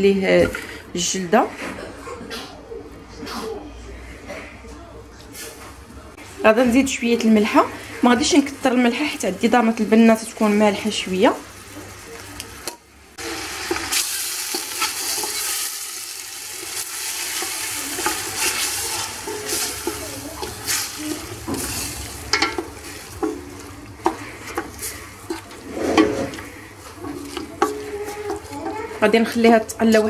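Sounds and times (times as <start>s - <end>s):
food sizzling in oil: 7.4s - 29.8s
wooden spoon scraping a pot: 13.6s - 30.0s.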